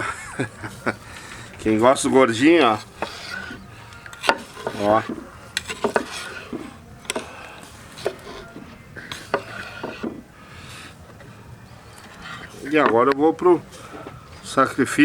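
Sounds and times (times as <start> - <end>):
knife cutting meat on wooden board: 2.6 - 10.2.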